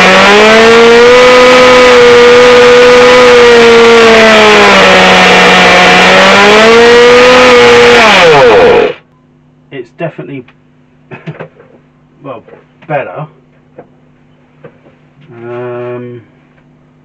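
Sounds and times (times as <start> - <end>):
small nitro engine running fast: 0.0 - 9.0.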